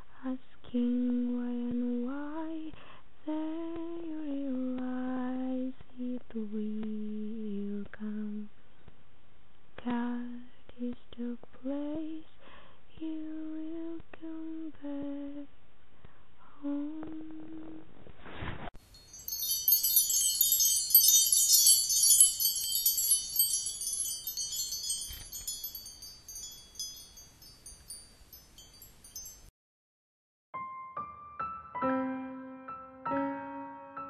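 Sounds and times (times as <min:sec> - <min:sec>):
woman humming a tune: 0:16.5 - 0:17.8
wind chimes tinkling: 0:18.8 - 0:29.5.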